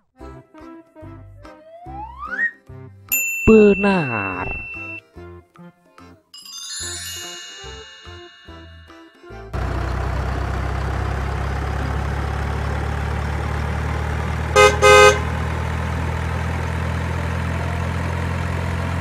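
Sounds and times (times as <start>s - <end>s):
vehicle engine droning: 9.6s - 19.0s
horn toots: 14.5s - 15.4s.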